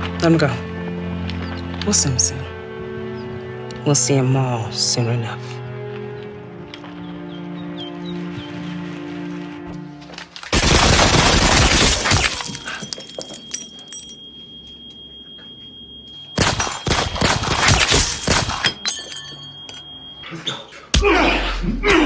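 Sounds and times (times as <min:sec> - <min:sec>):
high steady ringing tone: 0:11.7 - 0:20.9.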